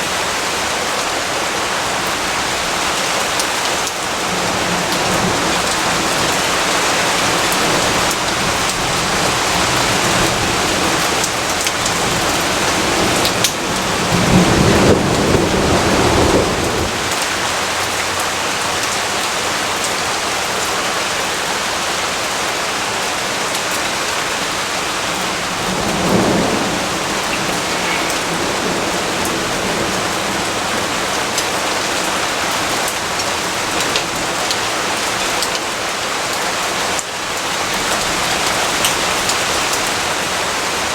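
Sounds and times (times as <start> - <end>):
heavy rainfall: 0.0 - 40.9
thunder rumbling: 4.0 - 18.0, 24.2 - 33.8.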